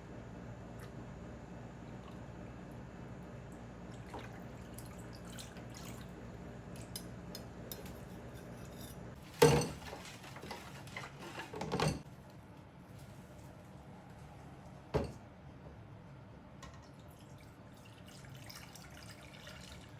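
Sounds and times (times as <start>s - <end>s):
utensils and containers clinking: 6.8s - 12.1s.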